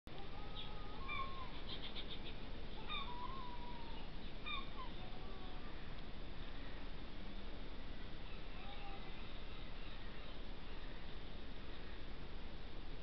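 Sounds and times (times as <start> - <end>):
steady hiss: 0.1 - 13.0
bird calls: 0.4 - 5.9, 8.2 - 12.0.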